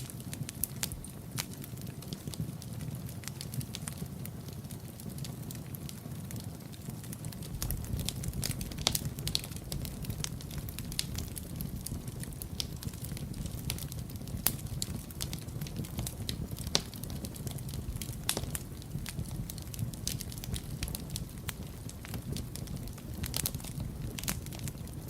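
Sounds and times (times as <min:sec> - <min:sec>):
wood fire crackling and popping: 0:00.0 - 0:25.0.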